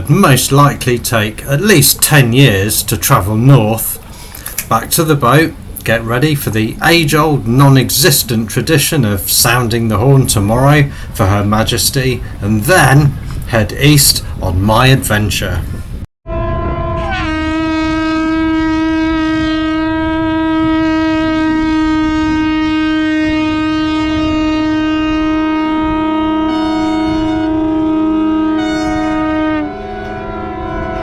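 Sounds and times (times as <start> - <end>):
boat horns blasting: 16.3 - 31.0.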